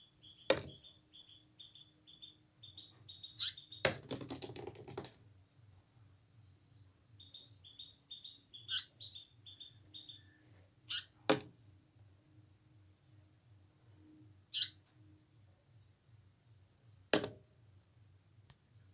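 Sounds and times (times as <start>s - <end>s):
loud sharp bird calls: 0.0s - 3.9s, 7.2s - 11.2s, 14.5s - 14.8s
bird chirping: 0.0s - 4.0s, 6.4s - 11.2s, 14.5s - 14.9s
knock: 0.5s - 0.7s, 17.2s - 17.4s.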